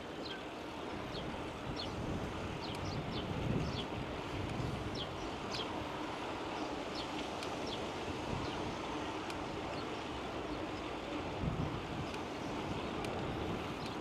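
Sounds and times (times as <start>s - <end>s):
wind on microphone: 0.9s - 6.3s, 7.7s - 10.0s, 10.6s - 14.0s
light ticks: 2.6s - 2.9s, 4.4s - 4.8s, 5.4s - 5.7s, 7.0s - 7.8s, 9.2s - 9.9s, 12.0s - 14.0s.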